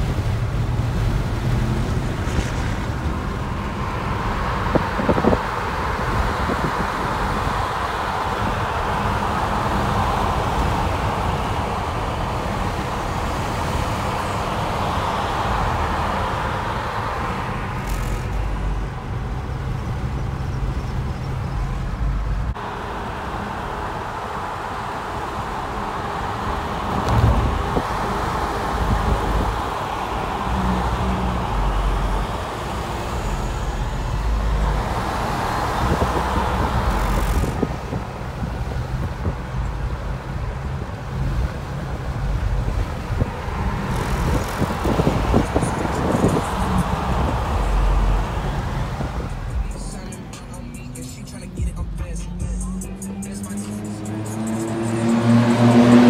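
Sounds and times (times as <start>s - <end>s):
car road and wind noise: 0.0s - 56.0s
low rumble: 26.8s - 29.5s.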